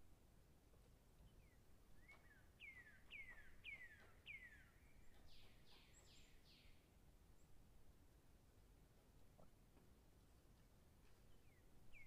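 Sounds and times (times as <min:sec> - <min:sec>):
whistled bird calls: 0:02.0 - 0:06.7.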